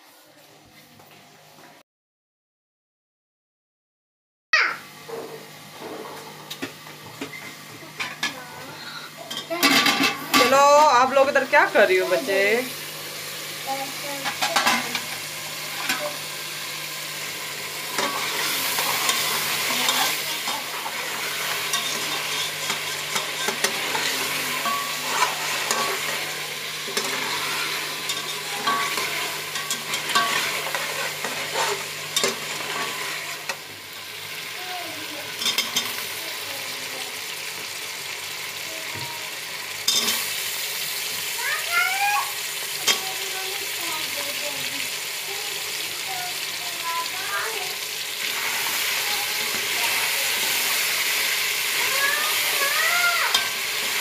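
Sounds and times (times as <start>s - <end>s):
meat sizzling in pot: 4.6s - 54.0s
metal spatula scraping pot: 17.9s - 33.6s, 39.9s - 40.3s.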